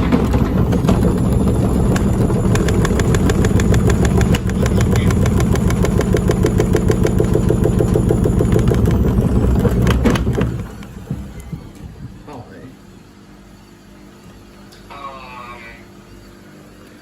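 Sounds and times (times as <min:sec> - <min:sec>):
washing machine banging: 0:00.0 - 0:12.8
motor and drum hum: 0:00.0 - 0:14.6.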